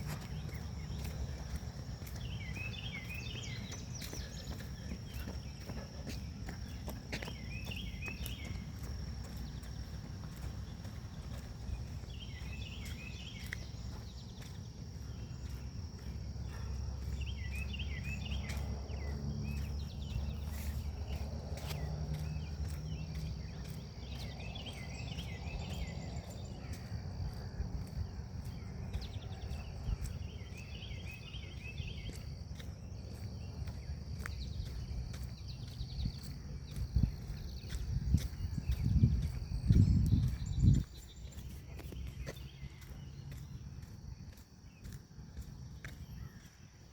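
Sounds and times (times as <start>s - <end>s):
footsteps: 0.0s - 25.3s
low wind rumble: 0.0s - 44.4s
songbird chirping: 0.0s - 46.9s.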